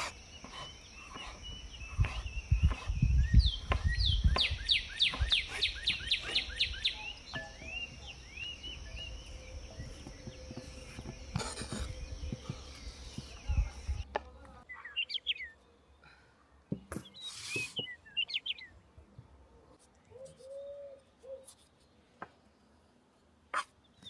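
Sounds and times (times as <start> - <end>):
songbird singing: 0.0 - 24.0.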